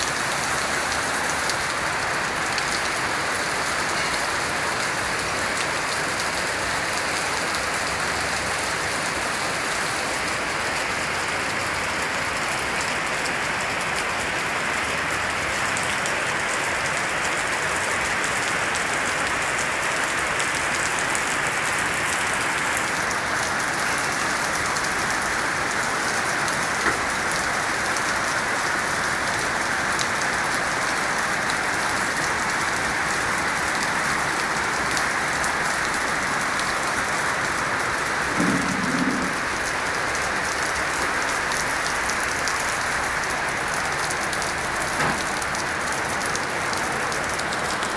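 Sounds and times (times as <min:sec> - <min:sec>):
heavy rain pattering: 0:00.0 - 0:47.9.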